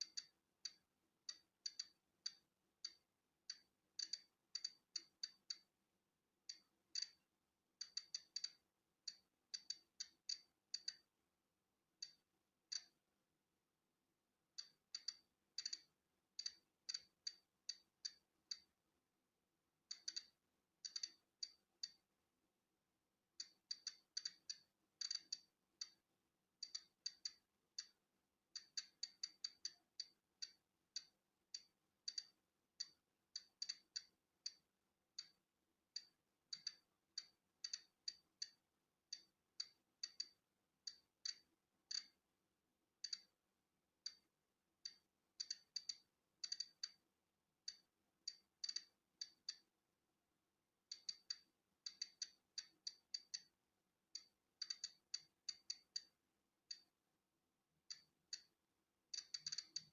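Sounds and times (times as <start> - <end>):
geiger counter clicking: 0.0 - 5.7, 6.5 - 7.2, 7.8 - 11.1, 14.6 - 18.7, 19.9 - 22.0, 23.4 - 26.0, 26.6 - 28.0, 28.6 - 34.6, 35.2 - 35.4, 36.0 - 42.2, 43.0 - 43.3, 44.0 - 47.0, 47.6 - 49.7, 50.9 - 53.5, 54.1 - 56.9, 57.9 - 59.9.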